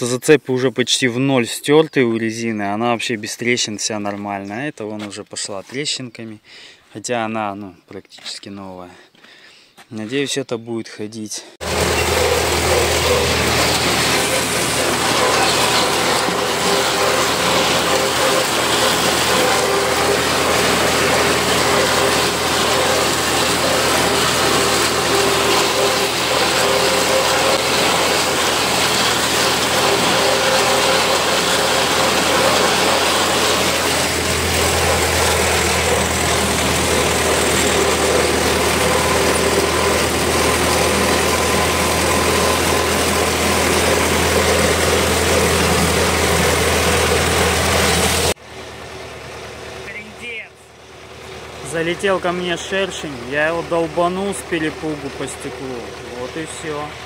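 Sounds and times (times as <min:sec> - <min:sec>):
machinery clattering: 0:11.6 - 0:48.4, 0:51.4 - 0:57.0
tractor engine under load: 0:11.6 - 0:57.0.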